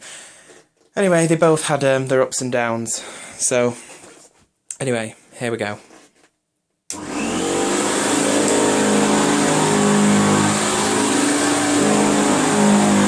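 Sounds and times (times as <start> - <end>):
vacuum cleaner running: 6.9 - 13.0.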